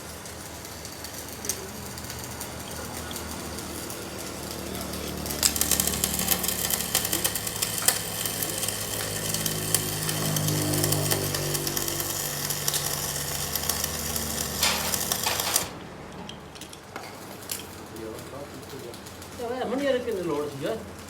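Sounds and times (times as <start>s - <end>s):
machinery motor hum: 0.0s - 16.0s
rapid rattling clicks: 0.2s - 15.7s.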